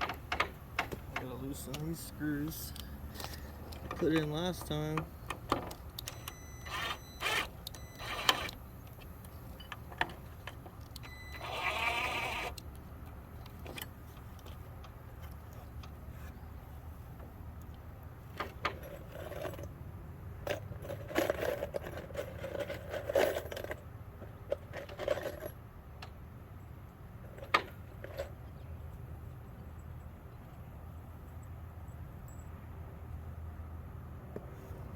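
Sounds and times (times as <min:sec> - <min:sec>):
screwdriver whirring: 0:06.0 - 0:08.6, 0:11.0 - 0:12.6.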